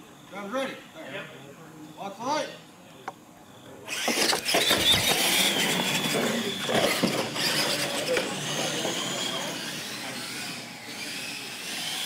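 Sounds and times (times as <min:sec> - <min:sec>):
toy truck banging over ramp: 0:03.9 - 0:09.5
electric drive whining: 0:03.9 - 0:12.0.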